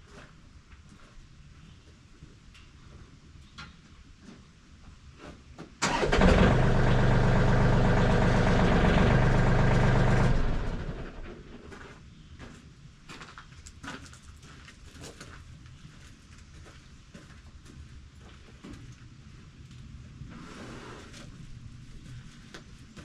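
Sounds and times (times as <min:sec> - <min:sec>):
electric winch motor running: 0:05.8 - 0:11.3.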